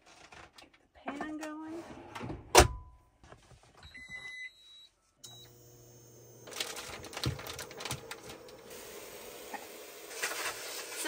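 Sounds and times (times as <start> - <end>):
sausages sizzling and popping: 7.2 - 11.0.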